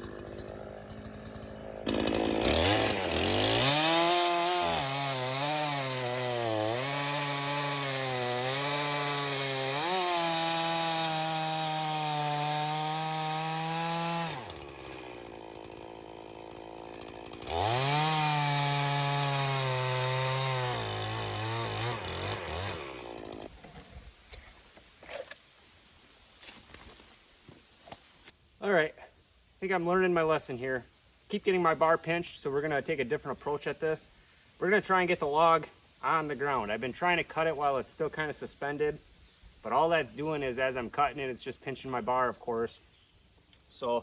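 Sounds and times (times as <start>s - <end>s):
chainsaw cutting log: 0.0s - 24.4s.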